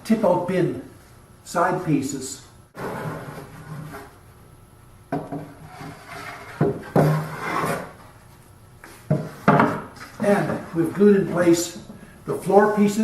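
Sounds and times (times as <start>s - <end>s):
wood rubbing and scraping on wood: 2.8s - 4.2s, 5.3s - 11.9s.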